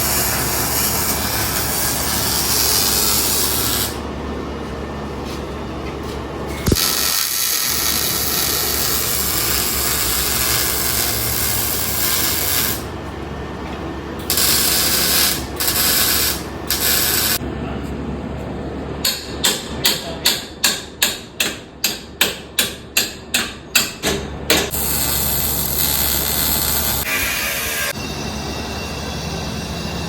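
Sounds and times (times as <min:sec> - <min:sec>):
pneumatic tools running: 0:06.6 - 0:12.9, 0:14.3 - 0:17.4, 0:24.7 - 0:28.0.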